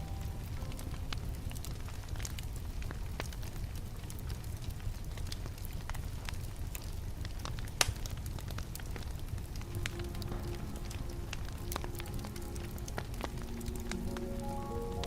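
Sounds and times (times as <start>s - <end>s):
fire popping: 0.0s - 15.0s
wood fire crackling: 0.0s - 15.0s.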